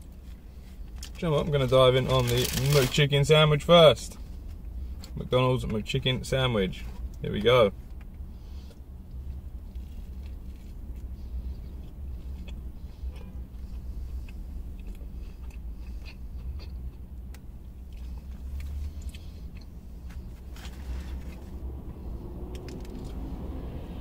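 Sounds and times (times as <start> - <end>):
steady low rumble: 0.0 - 24.0
person chewing crunchy food: 8.0 - 21.5.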